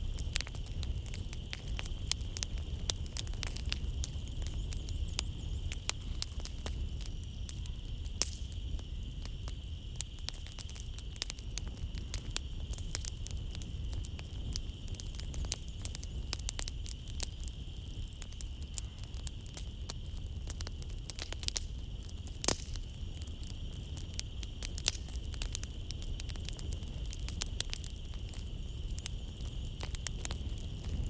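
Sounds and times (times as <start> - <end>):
insects chirring: 0.0 - 31.0
wood fire crackling: 0.0 - 31.0.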